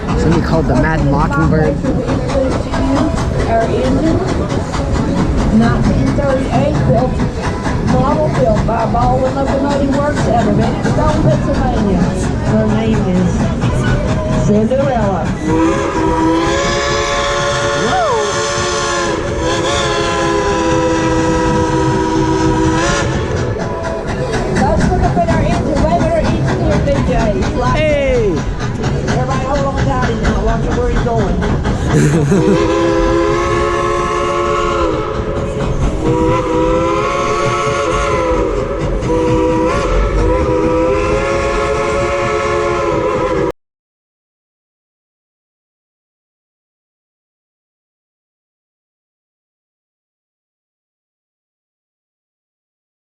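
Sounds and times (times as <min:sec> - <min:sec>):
rumble of moving train: 0:00.0 - 0:43.5
steam locomotive whistle: 0:15.4 - 0:23.5, 0:32.3 - 0:35.4, 0:36.0 - 0:43.5.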